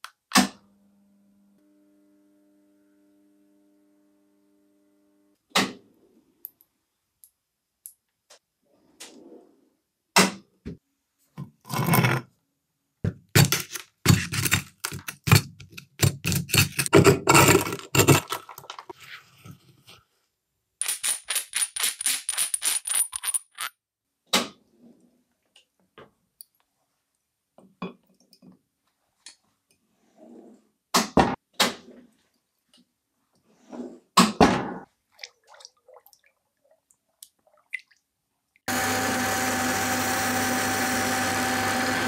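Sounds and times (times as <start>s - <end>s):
metal tools clinking and scraping: 20.8s - 23.7s.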